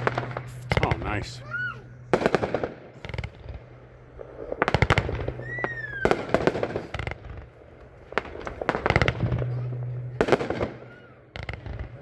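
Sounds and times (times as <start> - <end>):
fireworks launches and bursts: 0.0 - 12.0
falling firework whistle: 4.6 - 7.2.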